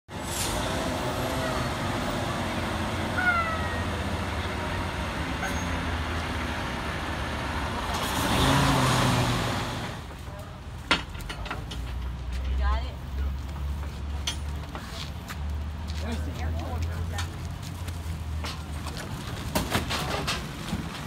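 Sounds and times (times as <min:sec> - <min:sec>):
short squeals: 0:05.4 - 0:05.9.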